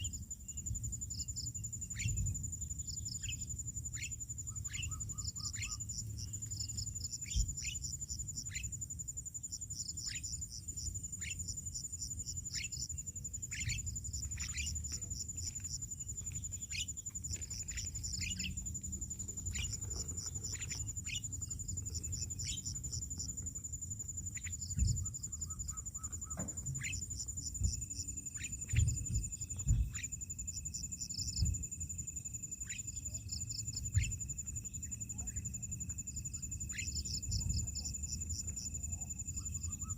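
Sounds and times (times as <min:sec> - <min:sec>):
insect trilling: 0:00.0 - 0:39.9
birds calling: 0:04.0 - 0:07.9, 0:12.5 - 0:23.3, 0:24.4 - 0:30.1.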